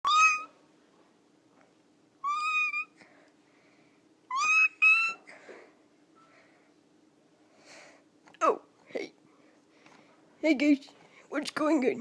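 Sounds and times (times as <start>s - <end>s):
high-pitched mewing calls: 0.0s - 0.6s, 2.2s - 3.0s, 4.3s - 5.3s
faint steady hum: 0.0s - 12.0s.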